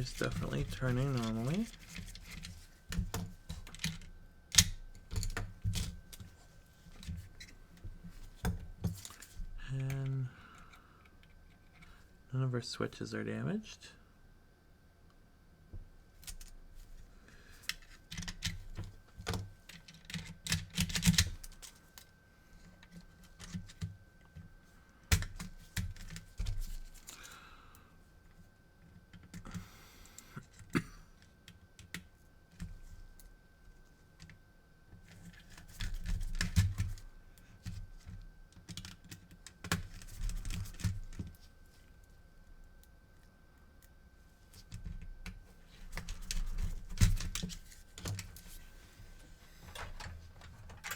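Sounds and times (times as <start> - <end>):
plastic parts clicking and rattling: 0.0 - 7.5, 17.6 - 22.0, 37.6 - 41.4.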